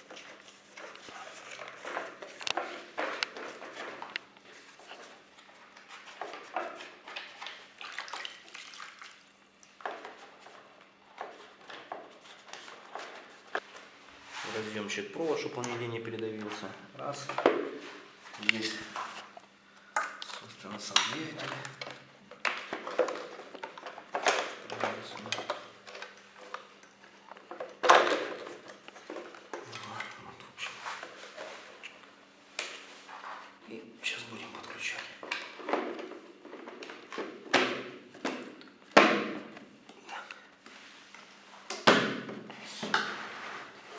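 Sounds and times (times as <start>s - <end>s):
rustling and light clicks of wires: 0.0s - 7.6s
faint steady hum: 0.0s - 43.9s
plastic parts knocking and clicking: 20.8s - 26.7s, 27.3s - 29.7s.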